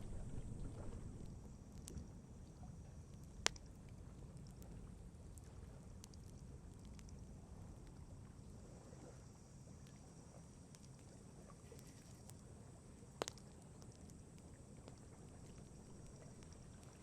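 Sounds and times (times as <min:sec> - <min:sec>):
campfire crackling: 0:00.0 - 0:01.5, 0:13.1 - 0:17.0.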